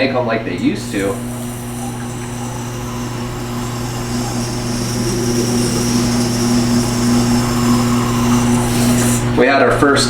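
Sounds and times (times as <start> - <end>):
electric fan running: 0.0 - 10.0.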